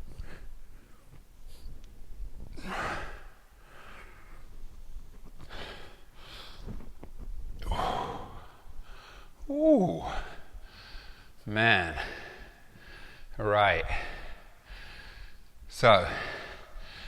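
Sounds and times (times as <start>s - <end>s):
man breathing hard: 2.5s - 4.6s, 5.4s - 6.9s, 7.6s - 17.0s.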